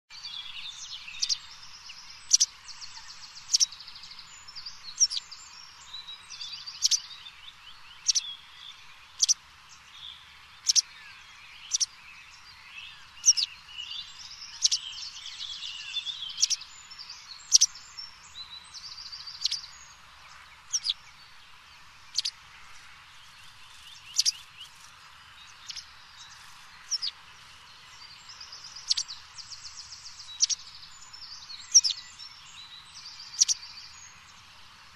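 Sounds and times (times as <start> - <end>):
rapid buzzing bird trill: 10.6 - 10.9, 17.5 - 17.8, 23.2 - 25.0, 25.6 - 27.6, 28.8 - 29.2, 30.3 - 30.7.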